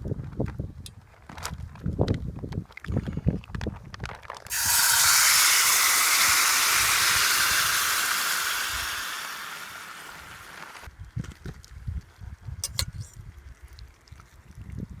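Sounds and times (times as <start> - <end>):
food sizzling in hot pan: 4.5 - 10.9.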